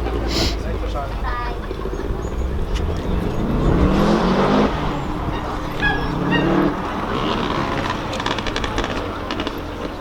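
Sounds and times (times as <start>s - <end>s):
car engine revving: 2.0s - 9.9s.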